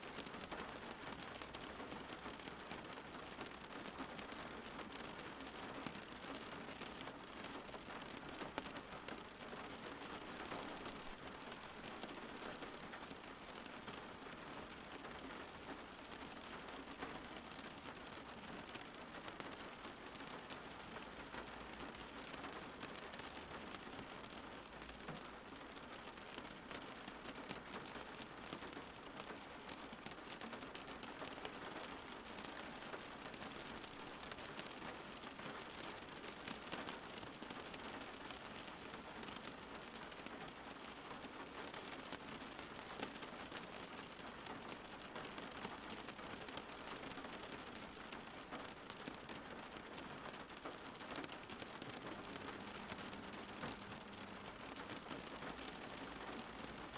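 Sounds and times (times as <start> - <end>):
rain pattering on a surface: 0.0 - 56.9.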